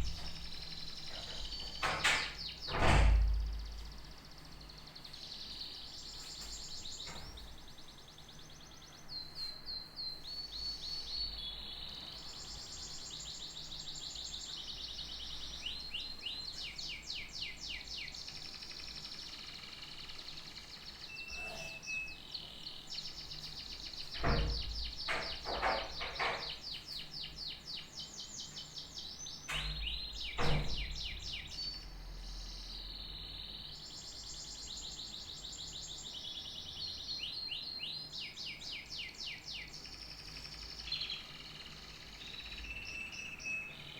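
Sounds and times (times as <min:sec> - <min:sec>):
sharp knocks: 0:00.0 - 0:03.8, 0:24.2 - 0:26.6, 0:29.5 - 0:31.1
canary singing trills: 0:03.5 - 0:43.9.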